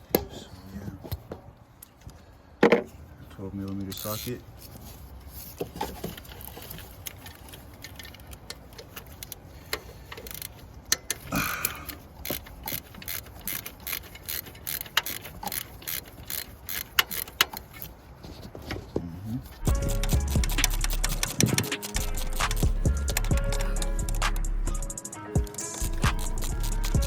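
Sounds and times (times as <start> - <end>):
ratchet wrench clicking: 3.9 - 4.4, 6.4 - 17.9, 19.6 - 27.0.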